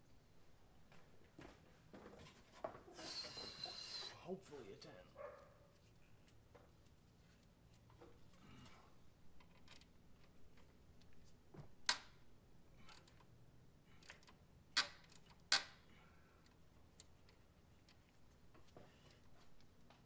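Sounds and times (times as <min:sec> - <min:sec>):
ratchet and socket clicking: 0:14.0 - 0:15.8.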